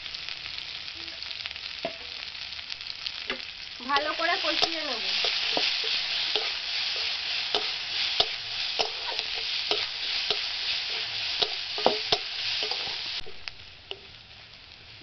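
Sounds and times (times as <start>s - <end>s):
onions sizzling in hot oil: 0.0s - 15.0s
metal spatula scraping a pan: 4.5s - 13.3s.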